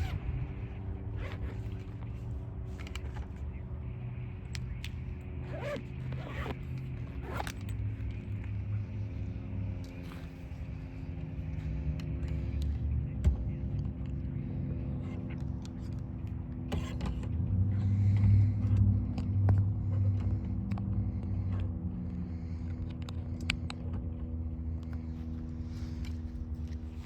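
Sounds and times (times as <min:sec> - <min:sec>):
low engine rumble: 0:00.0 - 0:27.0.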